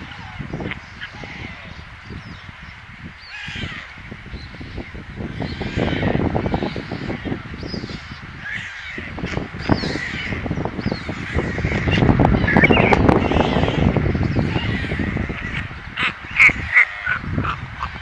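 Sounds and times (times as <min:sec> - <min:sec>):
birds cawing: 0:08.4 - 0:13.9.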